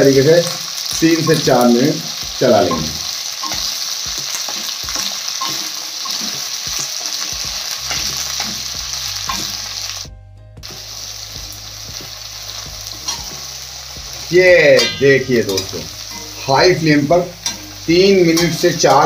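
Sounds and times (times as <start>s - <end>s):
okra sizzling in oil: 0.0s - 19.0s
spatula scraping and clattering: 13.0s - 13.4s.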